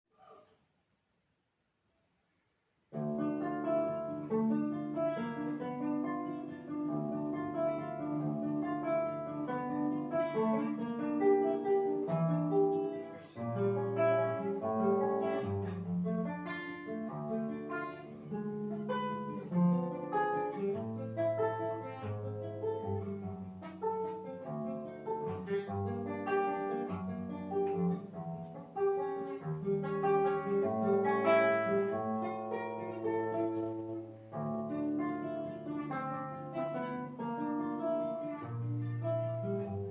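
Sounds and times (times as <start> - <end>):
plucked string instrument: 2.9 - 39.9.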